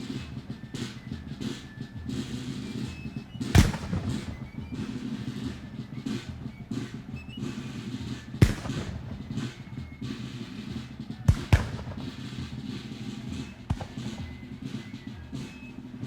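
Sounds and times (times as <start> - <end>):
distant fighting rumble: 2.6 - 7.7, 8.4 - 15.7
sharp gunshots: 3.5 - 4.9, 8.4 - 10.0, 11.3 - 14.8.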